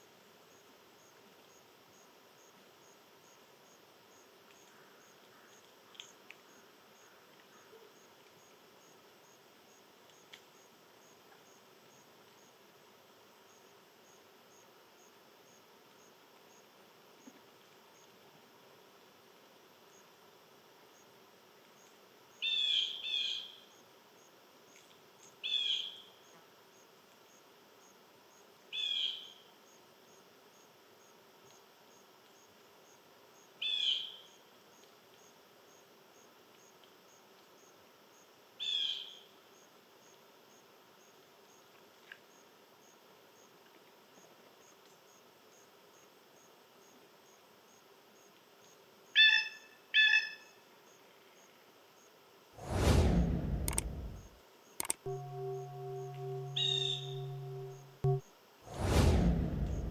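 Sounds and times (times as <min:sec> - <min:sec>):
bird chirping: 0:55.1 - 0:58.2.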